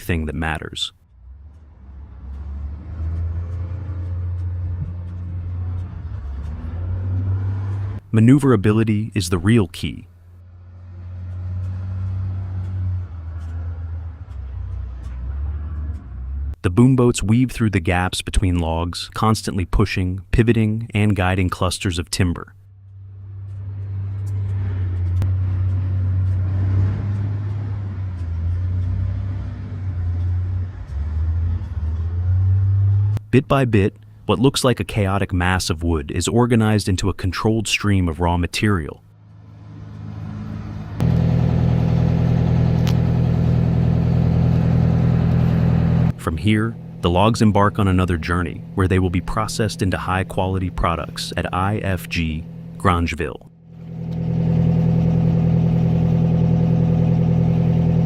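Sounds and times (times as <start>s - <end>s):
boat engine rumbling: 0.0s - 19.7s, 37.2s - 58.0s.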